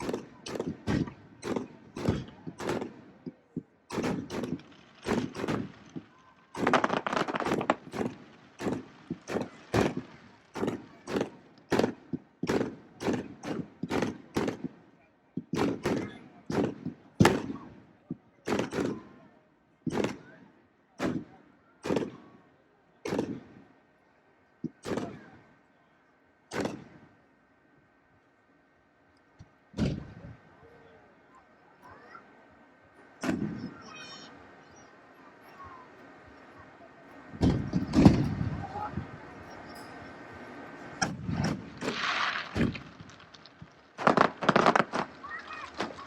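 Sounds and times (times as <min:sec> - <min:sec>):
fireworks bangs with echo: 0:00.0 - 0:22.4, 0:23.0 - 0:23.8, 0:24.6 - 0:25.4, 0:26.5 - 0:27.2, 0:29.7 - 0:30.4, 0:33.0 - 0:34.3, 0:37.3 - 0:39.9, 0:40.8 - 0:46.0.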